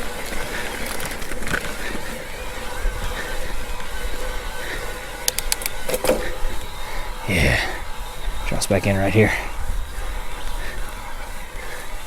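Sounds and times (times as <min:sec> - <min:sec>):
bike tyres rolling on trail: 0:00.0 - 0:12.0
wind noise on microphone: 0:00.0 - 0:12.0
sharp clicks: 0:05.2 - 0:06.2.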